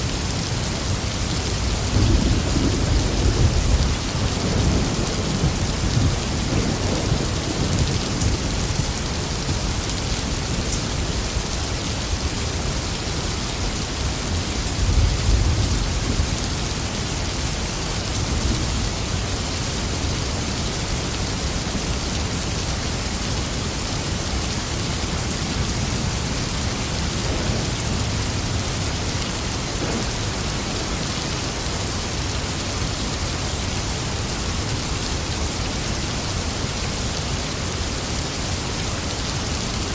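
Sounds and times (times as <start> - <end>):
heavy rain falling: 0.0 - 39.9
thunder rolling: 1.9 - 8.9, 26.4 - 31.0.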